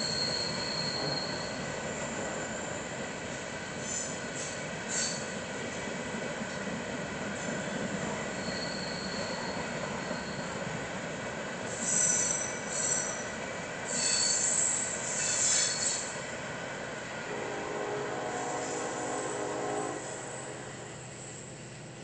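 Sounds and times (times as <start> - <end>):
freight train rumbling on rails: 0.0 - 22.0
wheels squealing: 8.4 - 10.5, 13.9 - 16.1.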